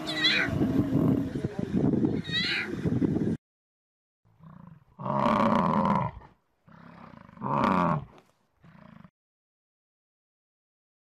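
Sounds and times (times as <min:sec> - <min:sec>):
animal roars: 0:04.4 - 0:09.1
low animal growl: 0:04.4 - 0:09.1.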